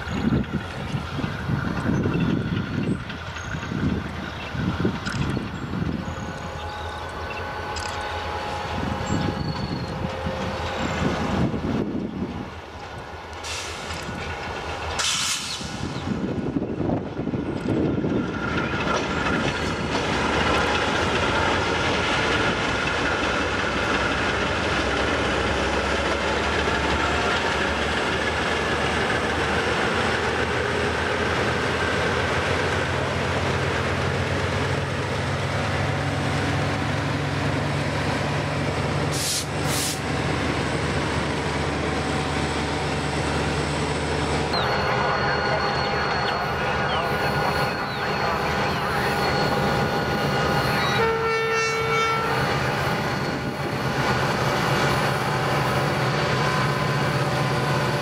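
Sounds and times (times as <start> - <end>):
locomotive engines rumbling: 0.0 - 58.0
short hissing: 13.4 - 13.9, 15.0 - 15.9, 39.1 - 40.1.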